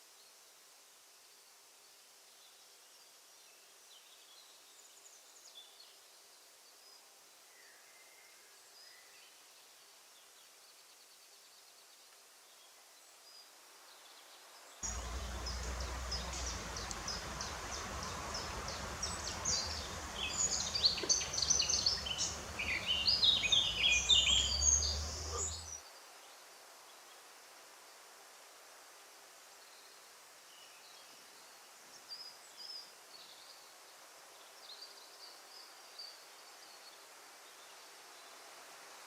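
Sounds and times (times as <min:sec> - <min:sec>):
wind rumble on microphone: 0:14.8 - 0:25.7
birds singing: 0:14.8 - 0:25.8.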